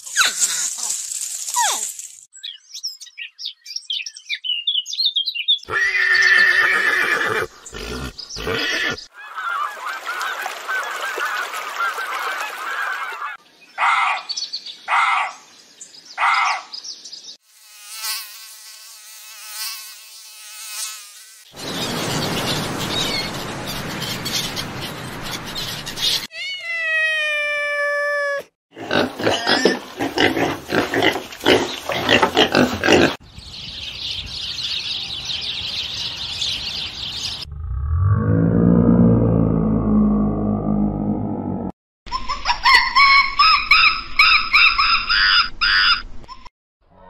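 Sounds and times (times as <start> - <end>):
harsh animal calls: 5.7 - 10.2
bird chatter: 21.5 - 26.3.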